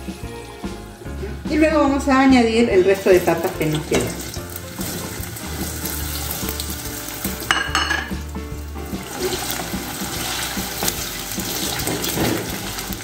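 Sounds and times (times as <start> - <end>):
potatoes sizzling in oil: 2.9 - 13.0
spatula stirring: 9.0 - 13.0.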